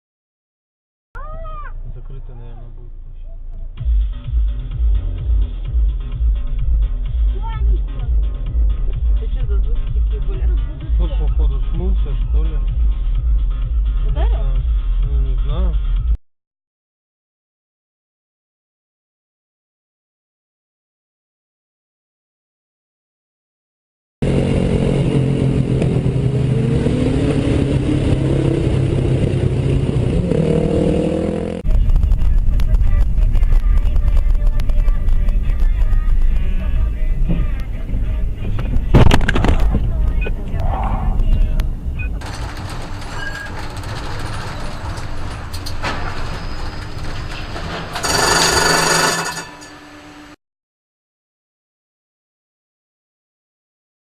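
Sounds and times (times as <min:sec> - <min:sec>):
road noise: 0:01.2 - 0:15.5, 0:24.2 - 0:50.4
vehicle engine running: 0:01.7 - 0:15.4, 0:24.2 - 0:50.2
car horn: 0:48.0 - 0:50.4.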